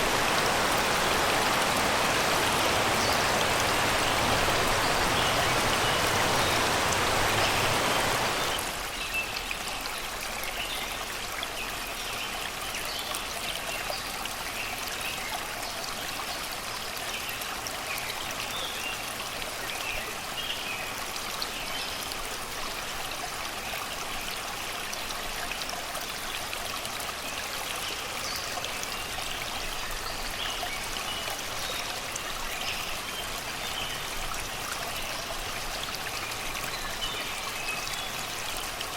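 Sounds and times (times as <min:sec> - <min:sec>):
river babbling over rocks: 0:00.0 - 0:08.9.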